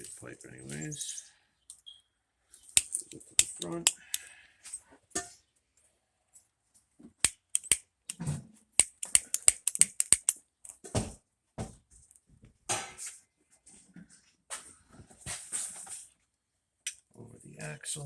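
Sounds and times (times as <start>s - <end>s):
tools clicking and knocking: 2.7s - 4.3s, 7.2s - 10.9s.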